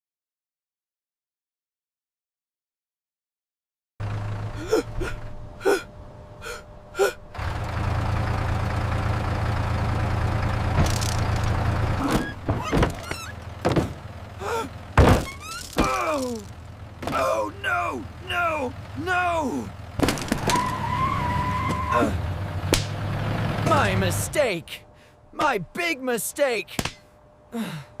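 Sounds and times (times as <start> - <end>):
low hum: 4.0 - 25.8
steady rumble: 4.0 - 25.9
cartoon character gasping and crying: 4.6 - 7.2, 14.4 - 14.8, 27.5 - 28.0.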